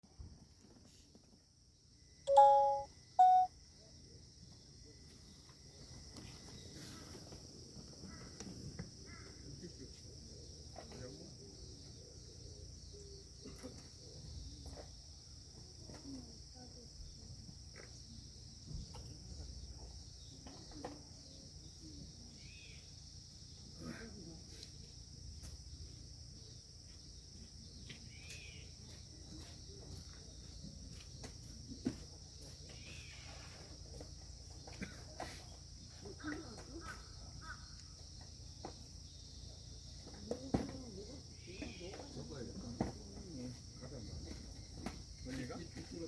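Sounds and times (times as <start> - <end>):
insects chirring: 1.7 - 29.3
short beeps: 2.3 - 3.5.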